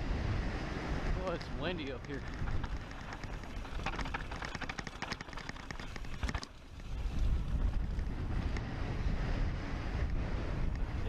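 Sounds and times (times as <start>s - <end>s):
wind buffeting microphone: 0.0s - 11.0s
small clicks: 1.9s - 6.6s.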